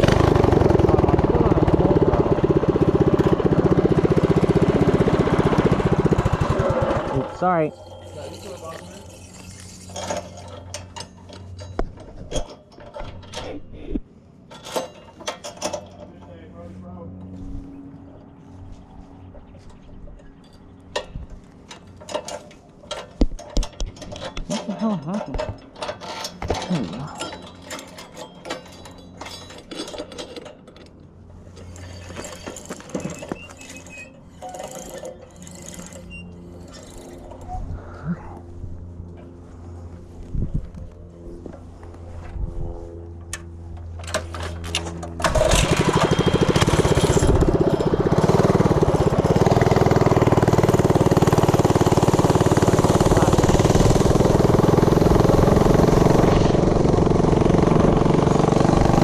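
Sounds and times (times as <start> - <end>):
small engine idling: 0.0 - 11.6, 43.3 - 59.0
sharp mechanical clicks and knocks: 19.7 - 37.5.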